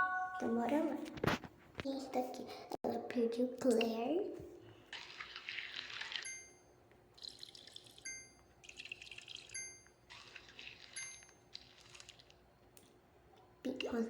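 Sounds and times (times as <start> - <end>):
short bright chimes: 0.0 - 0.5
liquid pouring and dripping: 4.9 - 13.0.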